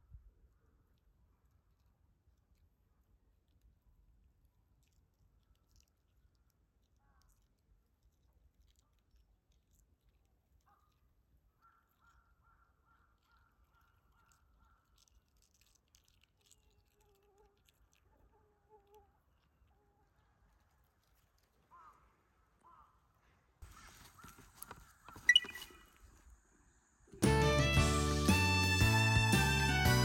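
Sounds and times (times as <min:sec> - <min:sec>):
faint bird calls: 0:21.6 - 0:26.4.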